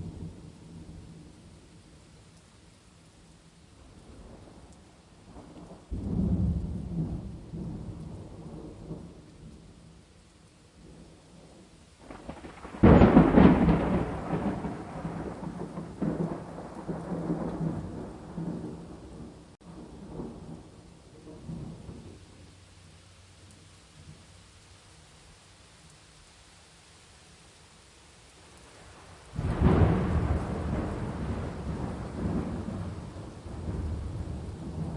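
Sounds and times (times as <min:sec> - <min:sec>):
steady rain: 0:00.0 - 0:34.9
thunder rumbling: 0:04.0 - 0:09.7, 0:10.8 - 0:22.3, 0:28.8 - 0:34.9.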